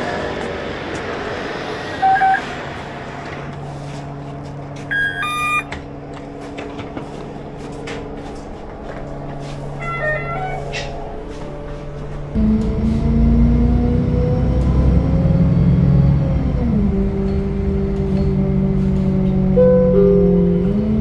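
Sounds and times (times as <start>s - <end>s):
low motor hum: 3.0s - 21.0s
short electronic beep: 4.9s - 5.7s
two-note chime: 4.9s - 5.7s, 19.6s - 20.6s.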